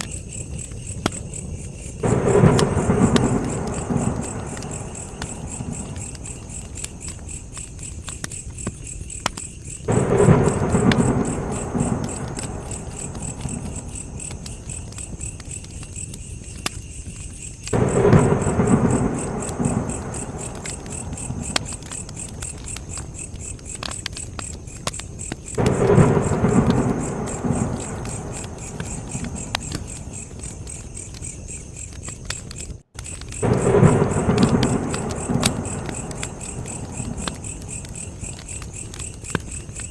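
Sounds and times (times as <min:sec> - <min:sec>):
campfire crackling and popping: 0:00.0 - 0:39.9
crickets chirping: 0:00.0 - 0:39.9
low rumble: 0:02.0 - 0:07.0, 0:09.9 - 0:14.6, 0:17.8 - 0:22.1, 0:33.4 - 0:38.4.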